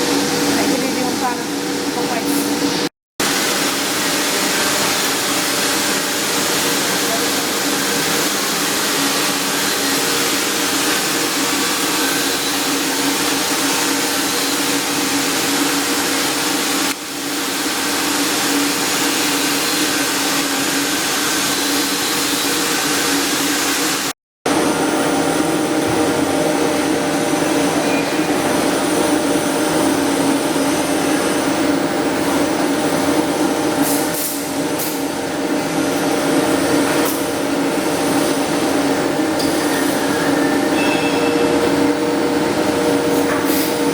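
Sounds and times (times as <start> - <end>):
welding arc hissing: 0.0 - 24.1.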